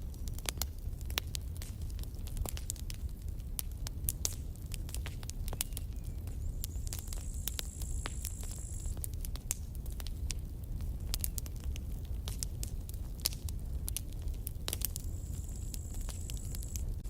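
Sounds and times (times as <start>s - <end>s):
burning wood popping and snapping: 0.0s - 17.0s
low rumble of fire: 0.0s - 17.0s
high steady hiss: 5.9s - 9.1s, 14.9s - 17.0s.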